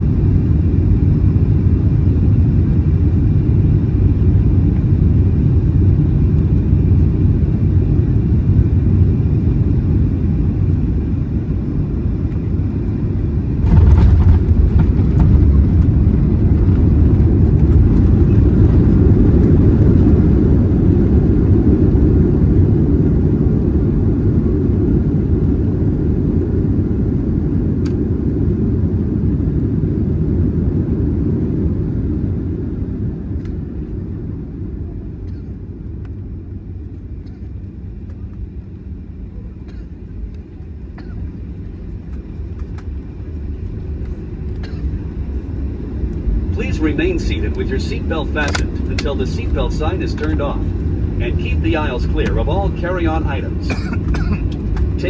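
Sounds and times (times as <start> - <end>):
jet engine rumble in cabin: 0.0 - 55.0
faint whine: 0.1 - 21.3, 33.0 - 55.0
wheels touching down clatter: 13.6 - 18.8.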